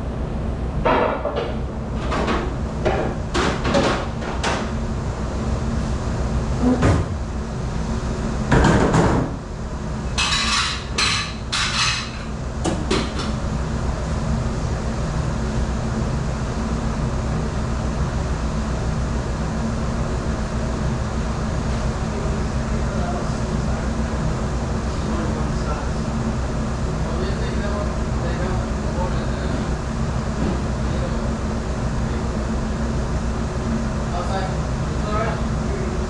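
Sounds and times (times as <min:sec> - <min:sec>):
steady machine drone: 0:00.0 - 0:36.0
dishes and racks clattering: 0:10.1 - 0:13.3.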